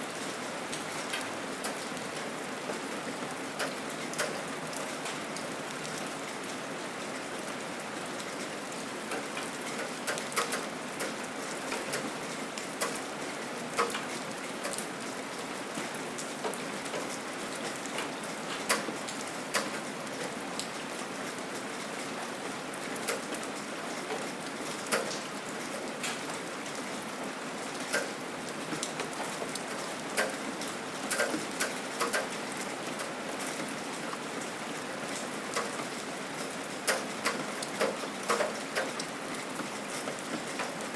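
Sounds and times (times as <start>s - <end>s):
gentle rain hiss: 0.0s - 40.9s
drops ticking on a surface: 31.1s - 32.3s.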